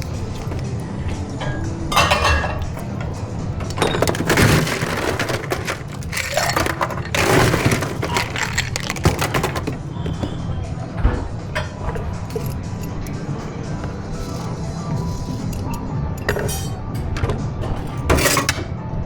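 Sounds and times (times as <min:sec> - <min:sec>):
ice and glassware clinking: 0:00.0 - 0:10.4, 0:11.6 - 0:13.3, 0:14.2 - 0:16.9.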